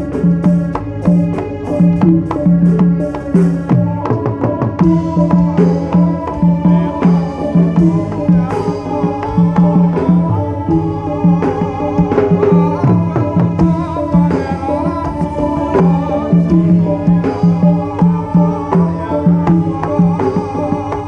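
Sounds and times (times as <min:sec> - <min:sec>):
hand drum beating: 0:00.0 - 0:21.0.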